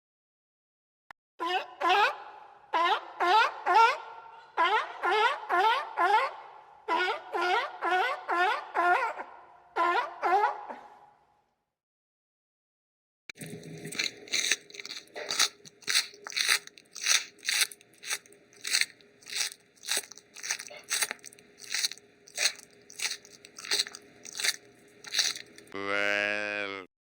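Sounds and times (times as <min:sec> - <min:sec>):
animal chewing with crunches: 0:13.3 - 0:25.8.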